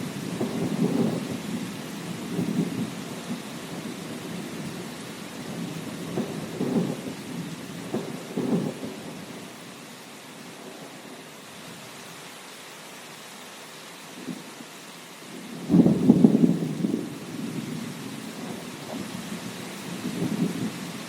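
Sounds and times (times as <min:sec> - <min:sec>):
thunder rumbling: 0:00.0 - 0:09.5, 0:15.5 - 0:20.8
steady rain hissing: 0:00.0 - 0:21.0.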